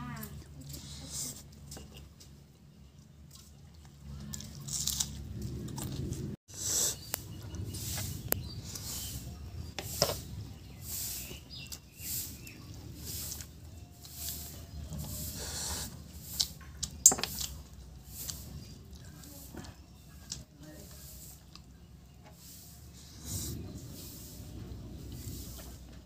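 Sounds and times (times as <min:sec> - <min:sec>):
wet chewing and lip-smacking: 0:01.5 - 0:06.3.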